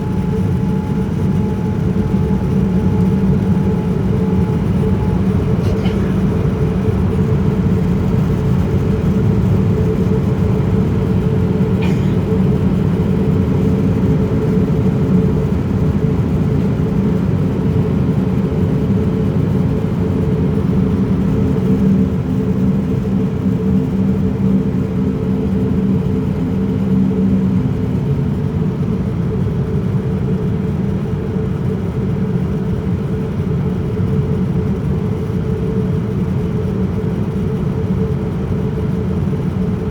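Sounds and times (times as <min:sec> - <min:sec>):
airliner cabin drone: 0:00.0 - 0:39.9.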